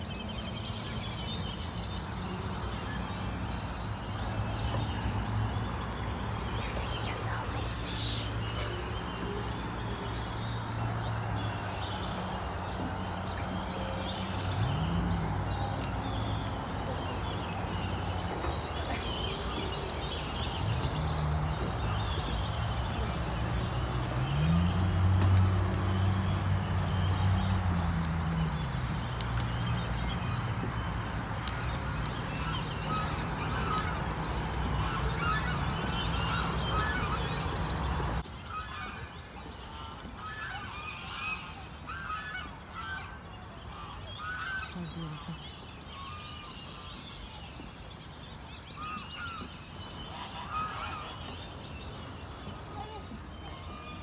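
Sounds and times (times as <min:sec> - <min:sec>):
waterfowl calling: 0:32.1 - 0:38.8.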